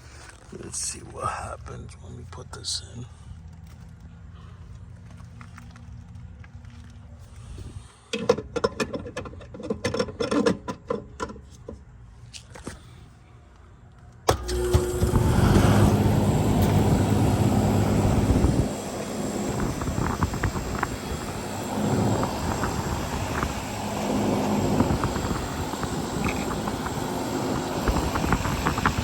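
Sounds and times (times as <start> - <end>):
air conditioner unit humming: 0.0 - 3.3, 14.2 - 29.0.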